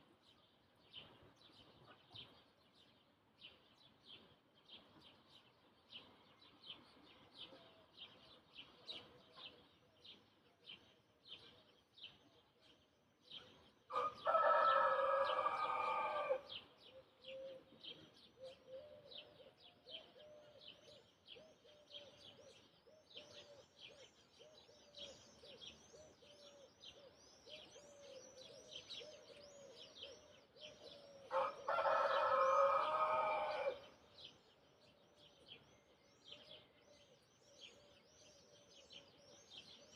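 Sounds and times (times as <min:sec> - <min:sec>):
small birds chirping: 0:00.0 - 0:39.9
rooster crowing: 0:13.9 - 0:16.5, 0:31.3 - 0:33.8.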